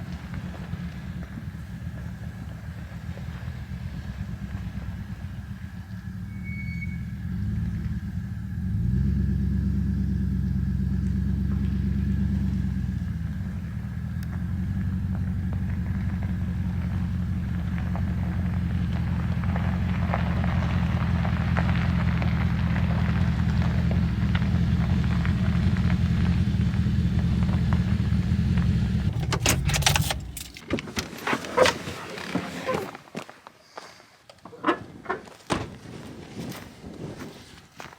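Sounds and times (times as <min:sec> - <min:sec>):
truck engine and road noise: 0:00.0 - 0:33.4
sharp clicks and knocks: 0:29.0 - 0:31.7.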